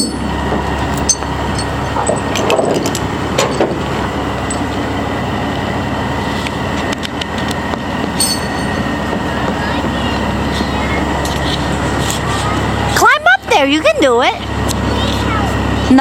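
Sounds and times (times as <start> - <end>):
sharp clicks and knocks: 0.0 - 3.9
vehicle engine running: 0.0 - 16.0.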